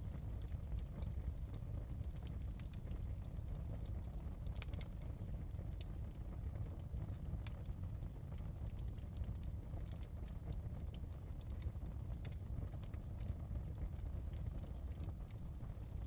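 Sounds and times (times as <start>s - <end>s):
wood fire crackling: 0.0s - 16.0s
steady low rumble: 15.3s - 16.0s.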